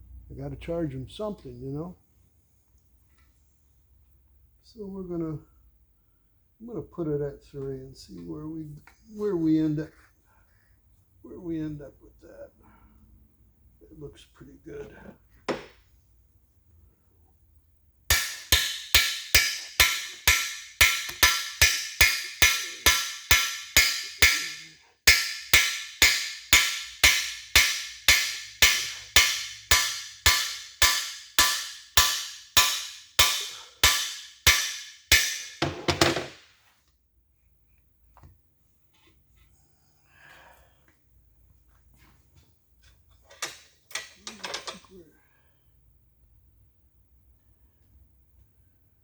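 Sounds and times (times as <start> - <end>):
hammer striking metal bar: 18.1 - 36.4.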